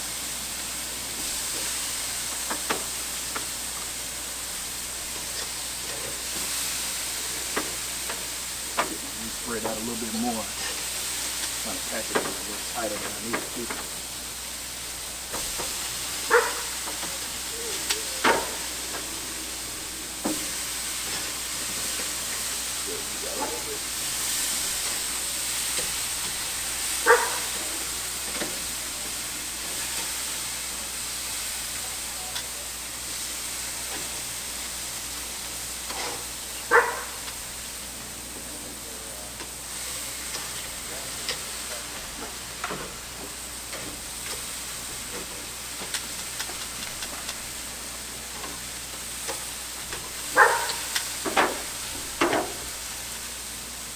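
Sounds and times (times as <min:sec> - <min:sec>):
meat sizzling on a grill: 0:00.0 - 0:53.9.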